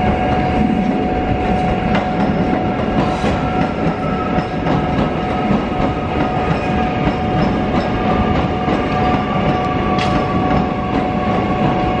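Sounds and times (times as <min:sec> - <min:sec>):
train high whine: 0:00.0 - 0:12.0
train wheels clicking over rail joints: 0:01.4 - 0:12.0.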